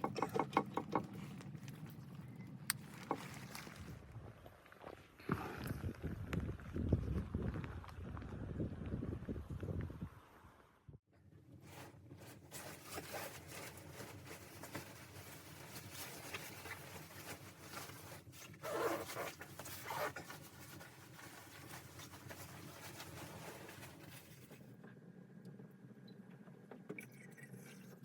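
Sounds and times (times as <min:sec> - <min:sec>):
fabric rustling and handling: 0:11.6 - 0:24.7
zipper-like scraping strokes: 0:18.5 - 0:20.6.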